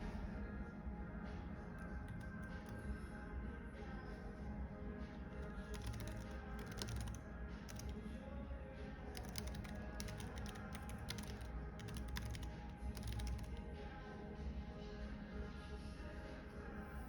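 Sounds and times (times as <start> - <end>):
soft background music: 0.0 - 17.0
typing on computer keyboard: 1.8 - 2.9, 5.4 - 8.0, 9.1 - 13.6.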